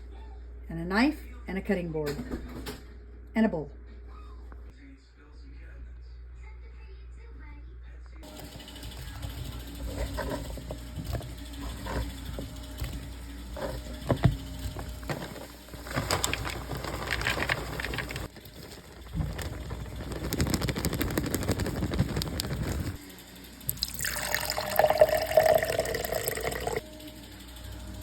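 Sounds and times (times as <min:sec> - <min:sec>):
rustling: 0:08.4 - 0:23.0.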